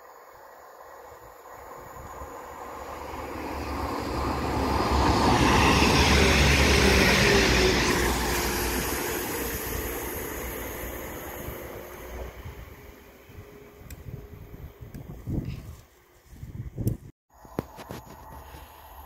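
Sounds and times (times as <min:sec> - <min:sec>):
train diesel engine: 0:00.0 - 0:16.6, 0:17.3 - 0:19.0
train wheels rumbling on rail: 0:01.4 - 0:15.6.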